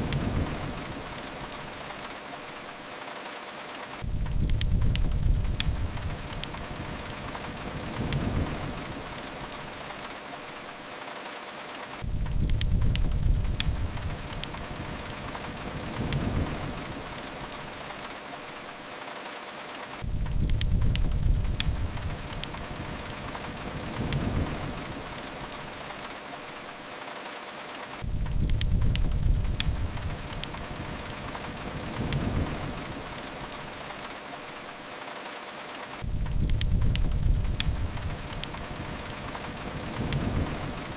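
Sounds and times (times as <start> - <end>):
fireplace crackles: 0.0 - 40.9
rain hiss: 0.0 - 40.9
low rumble: 36.0 - 38.9.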